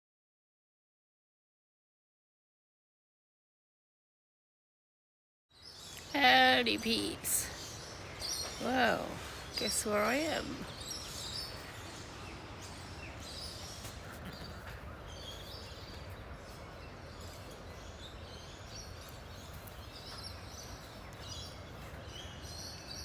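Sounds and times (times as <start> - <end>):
birds chirping: 5.5 - 23.0.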